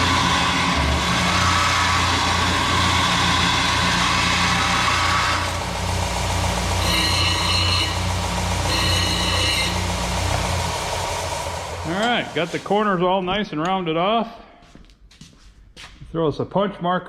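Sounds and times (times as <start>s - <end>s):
high ringing whine: 0.0s - 11.1s
grinder grinding steel: 0.0s - 13.2s.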